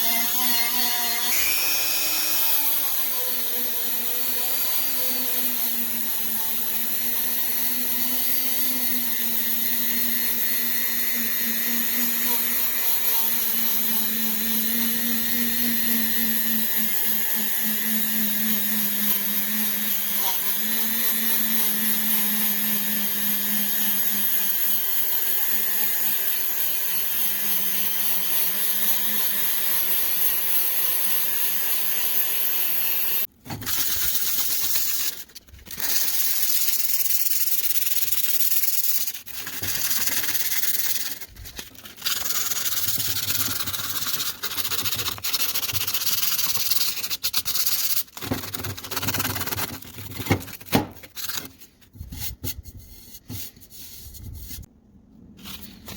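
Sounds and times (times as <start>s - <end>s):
electric power tool running: 0.0s - 5.0s.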